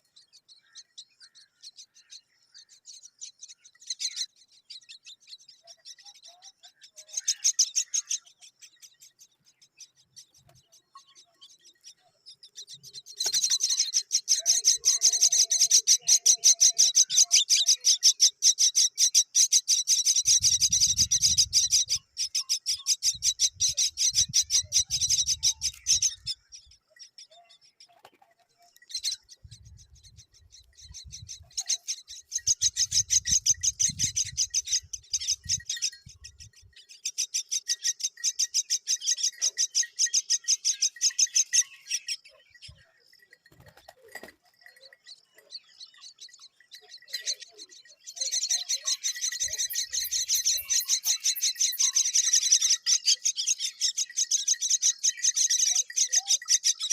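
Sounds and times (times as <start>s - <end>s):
young birds chirping: 0.0s - 56.9s.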